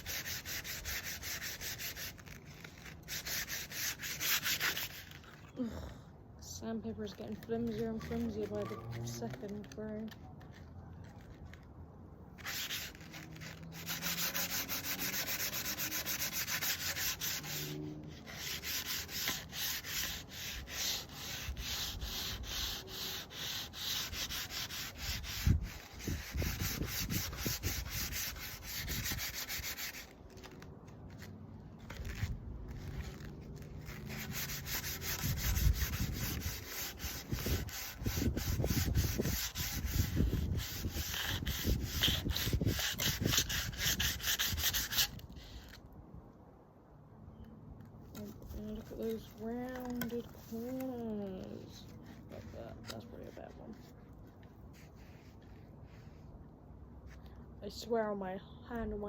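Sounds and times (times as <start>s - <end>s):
sandpaper rasping on wood: 0.0s - 5.2s, 7.6s - 9.8s, 12.4s - 30.1s, 33.8s - 45.8s, 48.2s - 53.9s.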